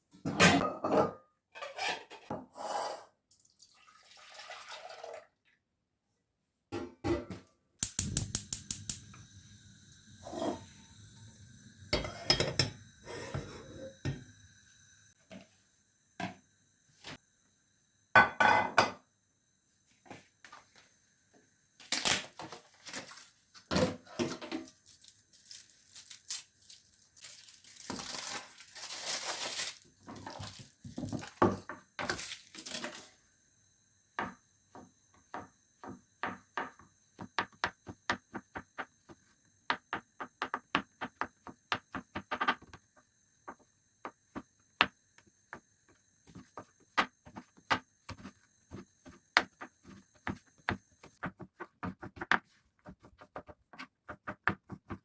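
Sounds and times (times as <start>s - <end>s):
dishes and utensils clinking: 11.9s - 14.2s, 18.2s - 19.0s
rustling and scraping: 24.1s - 31.4s.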